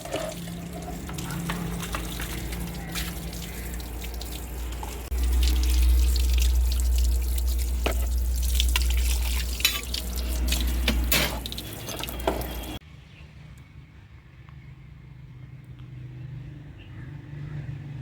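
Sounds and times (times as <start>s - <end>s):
water running and splashing: 0.0s - 12.8s.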